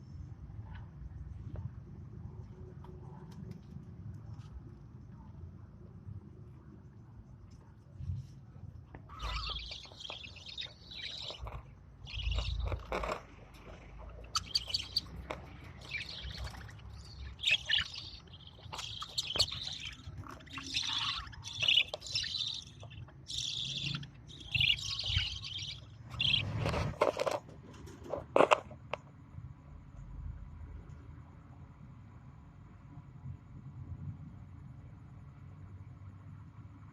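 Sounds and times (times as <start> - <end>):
lovebirds chirping: 8.9 - 27.4.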